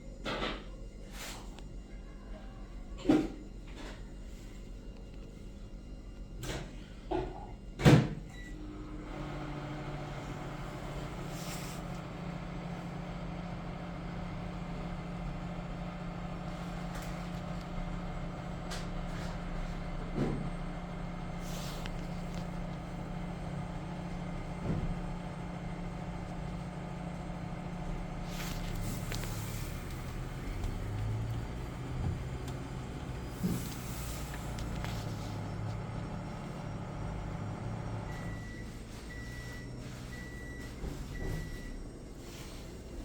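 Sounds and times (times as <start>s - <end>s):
electric motor humming: 19.6s - 38.2s.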